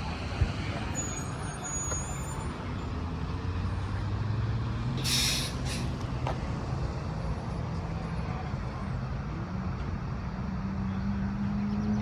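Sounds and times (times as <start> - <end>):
heavy vehicle engine humming: 0.0 - 12.0
road traffic: 0.0 - 12.0
sharp hiss of air: 5.0 - 6.0.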